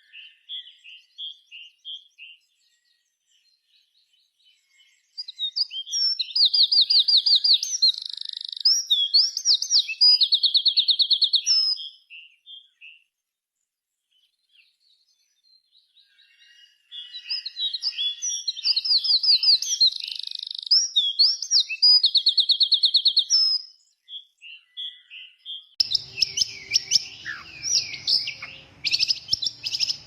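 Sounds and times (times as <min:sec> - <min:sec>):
songbird trilling: 0:04.6 - 0:13.0, 0:16.0 - 0:30.0.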